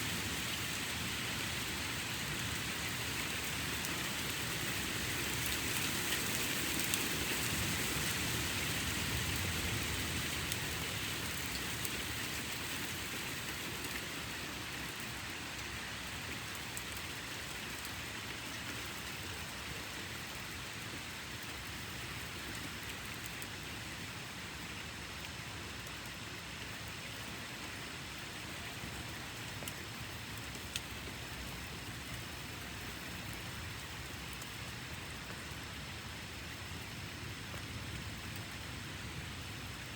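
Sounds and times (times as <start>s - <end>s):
steady rain falling: 0.0s - 39.9s
raindrop ticks: 27.5s - 38.6s.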